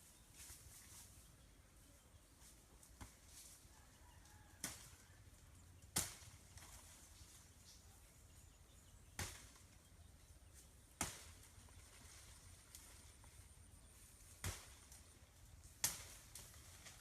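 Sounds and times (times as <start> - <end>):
blade chopping wood: 11.0 - 11.4, 14.4 - 14.8.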